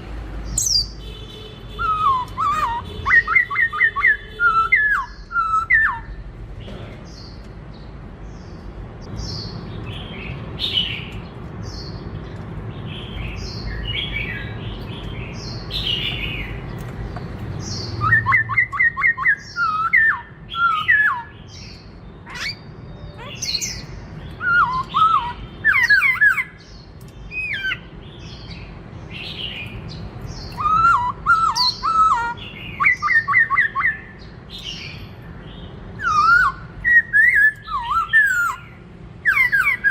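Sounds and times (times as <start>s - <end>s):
bird singing chirps and whistles: 0.6s - 6.2s, 17.6s - 39.9s.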